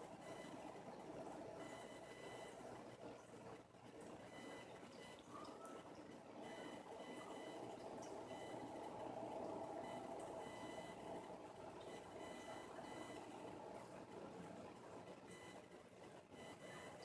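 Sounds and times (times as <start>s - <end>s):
aquarium equipment hum: 0.0s - 17.0s.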